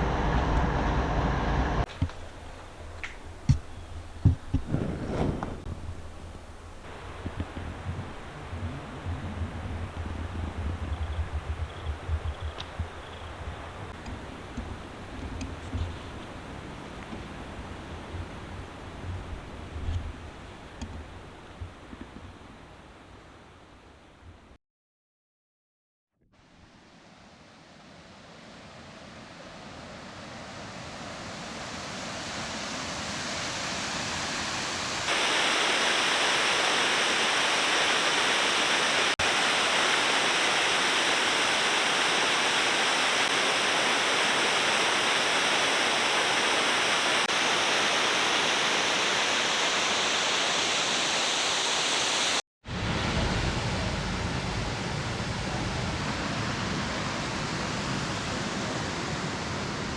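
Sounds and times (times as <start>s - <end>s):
waterfall rushing: 5.6s - 21.5s, 34.9s - 52.4s.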